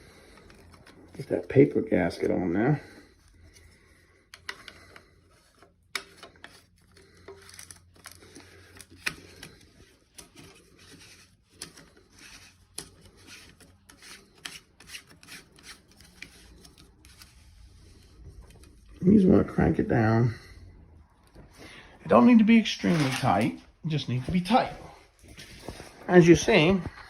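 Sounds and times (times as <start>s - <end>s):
plastic rubbing: 22.7s - 23.7s.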